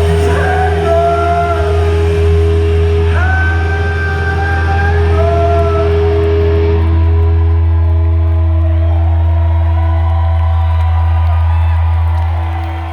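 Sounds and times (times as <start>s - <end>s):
live rock band playing: 0.0s - 9.2s.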